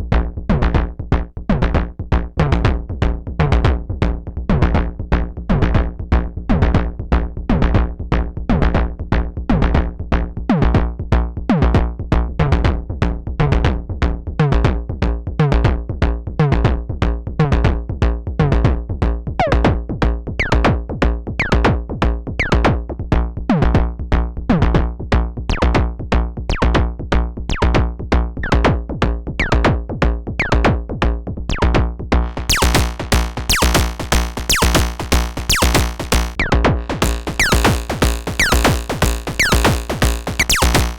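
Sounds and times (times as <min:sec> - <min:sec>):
steady low bass tone: 0:31.2 - 0:40.9
synthesizer percussion hits: 0:32.2 - 0:40.9.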